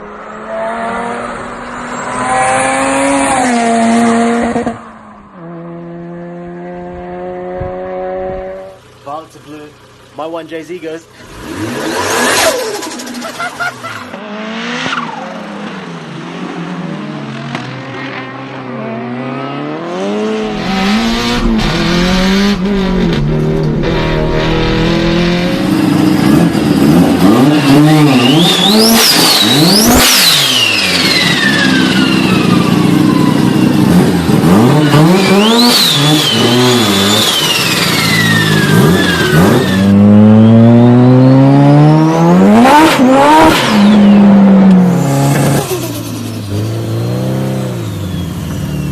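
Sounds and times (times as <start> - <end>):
turbocharged car engine revving: 11.2 - 48.9.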